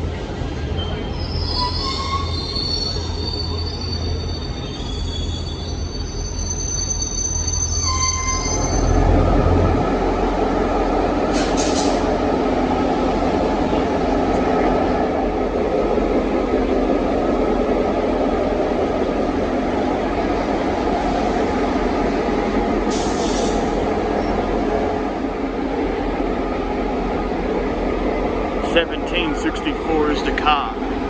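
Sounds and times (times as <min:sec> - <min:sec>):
train rumbling on rails: 0:00.0 - 0:31.0
train wheels squealing: 0:00.7 - 0:09.2.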